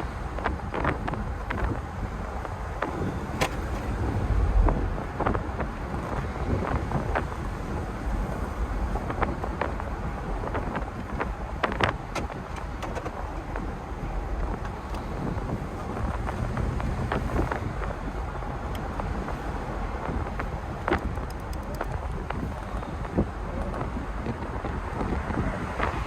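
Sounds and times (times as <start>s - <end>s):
car engine rumble: 0.0s - 26.0s
road noise: 0.0s - 26.0s
wind buffeting microphone: 0.0s - 26.0s.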